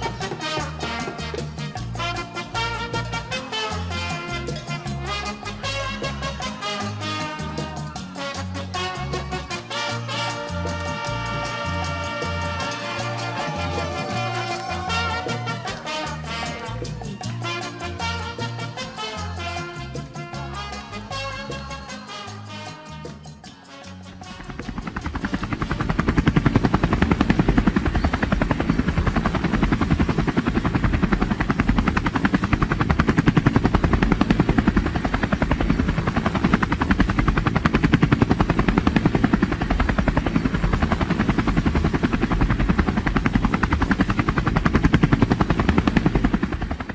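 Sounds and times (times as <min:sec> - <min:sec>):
helicopter rotor chop: 0:24.6 - 0:46.9.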